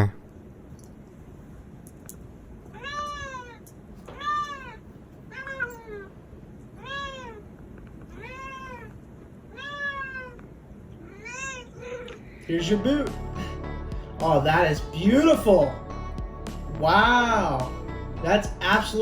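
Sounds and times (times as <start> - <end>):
cat meowing: 2.7 - 6.2, 6.8 - 12.4.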